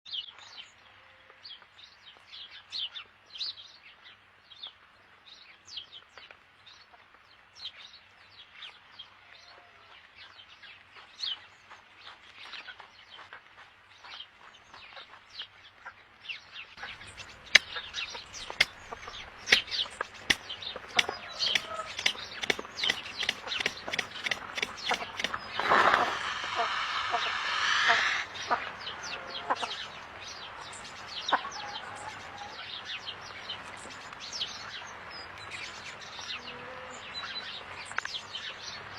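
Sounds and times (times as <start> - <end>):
sharp clicks: 16.8 - 25.5
birds chirping: 16.8 - 26.6.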